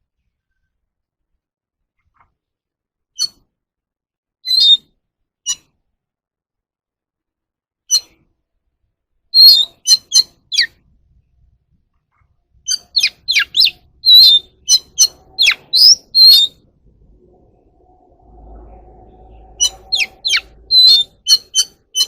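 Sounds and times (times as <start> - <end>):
bird singing high notes: 12.8 - 22.0.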